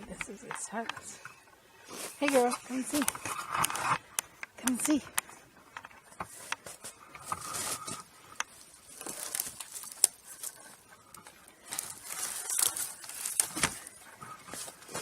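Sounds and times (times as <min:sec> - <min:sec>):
rustling in dry brush: 0:01.8 - 0:04.0, 0:06.0 - 0:15.0
twigs snapping: 0:02.2 - 0:15.0.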